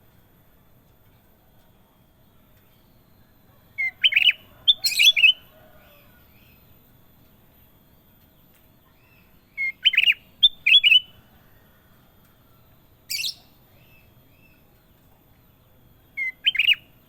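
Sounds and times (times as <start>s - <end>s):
bulbul whistled song: 3.8s - 5.5s, 8.9s - 11.2s, 13.1s - 14.6s, 16.1s - 17.0s.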